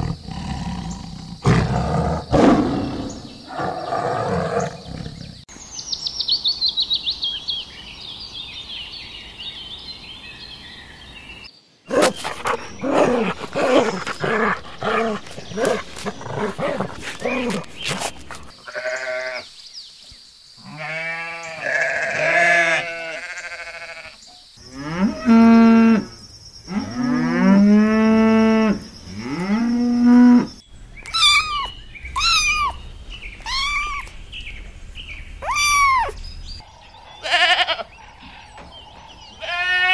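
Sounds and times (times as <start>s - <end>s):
cattle mooing: 11.9s - 19.4s
sheep bleating: 12.4s - 19.4s, 20.6s - 24.2s, 37.2s - 37.9s, 39.4s - 39.9s
high bird twittering: 30.7s - 39.6s.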